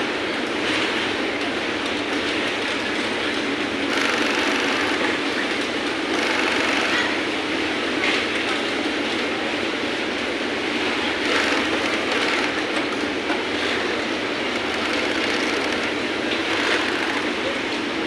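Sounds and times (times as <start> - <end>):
sewing machine stitching: 3.7 - 7.7, 10.8 - 17.7.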